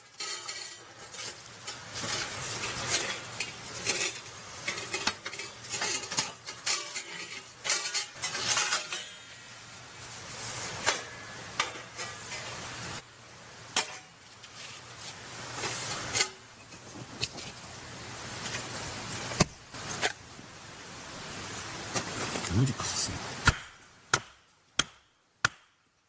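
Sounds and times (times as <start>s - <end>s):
handling noise: 21.8s - 22.8s.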